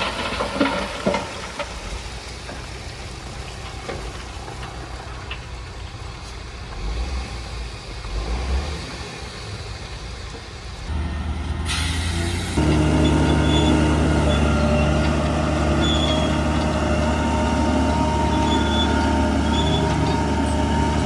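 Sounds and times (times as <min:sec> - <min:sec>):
heavy diesel machinery running: 0:10.7 - 0:21.0.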